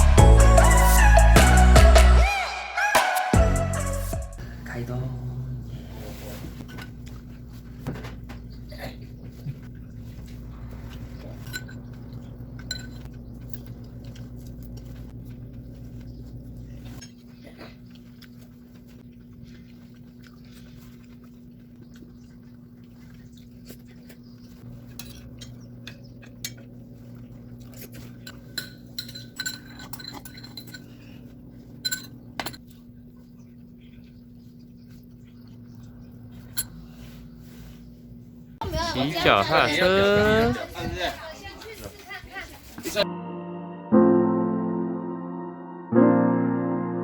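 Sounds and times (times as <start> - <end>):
steady low hum: 4.4 - 38.9
dishes and cutlery clinking: 10.9 - 13.6, 27.7 - 31.0, 31.7 - 32.7.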